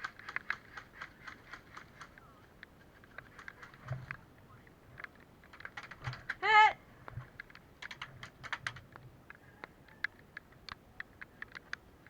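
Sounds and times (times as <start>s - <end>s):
person shouting: 6.4s - 6.8s.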